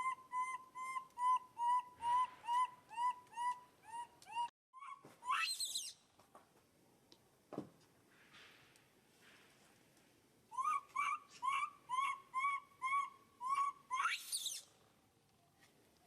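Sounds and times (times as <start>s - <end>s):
animal whistled notes: 5.3s - 6.0s, 10.6s - 14.7s.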